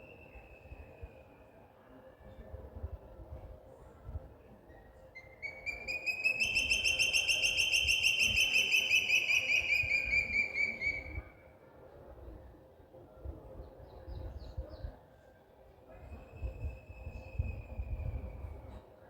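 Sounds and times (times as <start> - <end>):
songbird trilling: 5.2 - 11.2.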